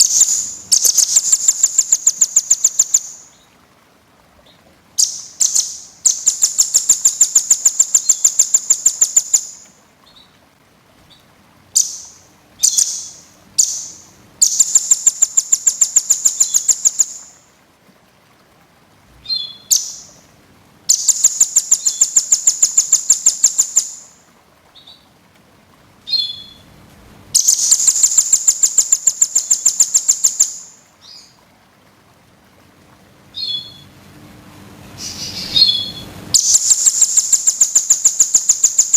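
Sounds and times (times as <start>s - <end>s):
sharp bird chirps: 0.0s - 3.3s, 11.8s - 17.3s, 27.4s - 31.2s, 33.4s - 33.8s, 35.0s - 38.9s
songbird rattling trills: 0.0s - 3.4s, 5.0s - 10.3s, 11.8s - 17.4s, 20.9s - 24.2s, 27.4s - 31.3s, 35.0s - 38.9s.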